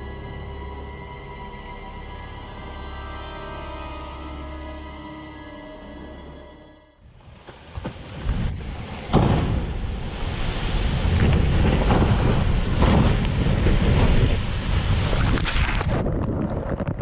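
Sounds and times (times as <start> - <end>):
rushing wind: 7.0 - 17.0
wind buffeting microphone: 7.3 - 17.0
rushing water: 7.6 - 16.0
sharp thump: 9.1 - 9.8.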